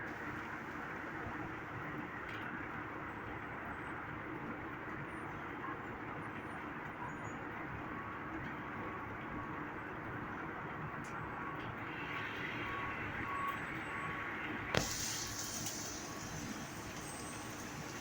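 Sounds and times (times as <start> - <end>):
rain falling: 11.8 - 18.0.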